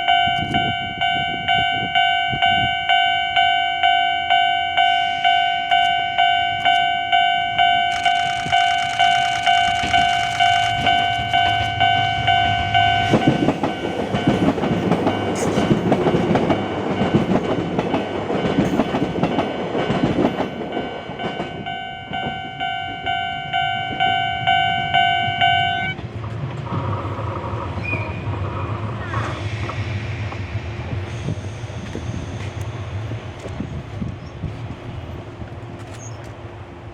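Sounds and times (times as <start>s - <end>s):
electric train passing over rails: 0.0s - 36.9s.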